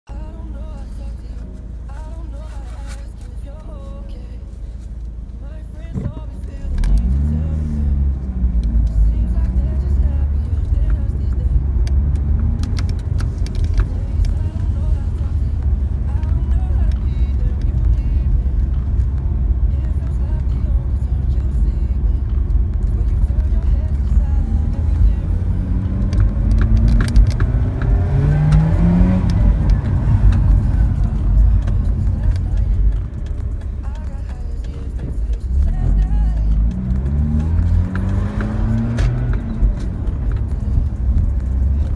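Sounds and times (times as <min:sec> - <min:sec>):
rotary engine droning: 0:04.2 - 0:41.9.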